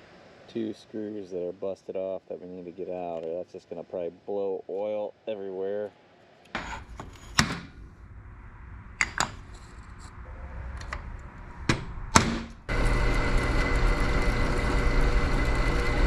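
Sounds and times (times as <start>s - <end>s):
machine running with hum: 7.7s - 16.0s.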